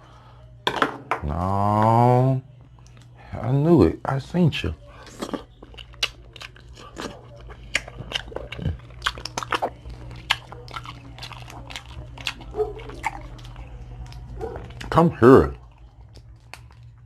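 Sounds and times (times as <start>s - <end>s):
chewing: 4.8s - 17.0s.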